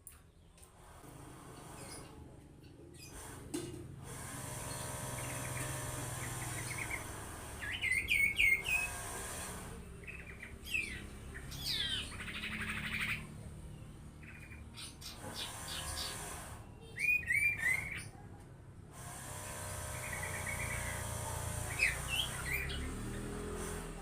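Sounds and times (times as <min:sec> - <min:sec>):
bird singing: 0:04.7 - 0:09.0, 0:09.8 - 0:18.4, 0:19.9 - 0:23.4.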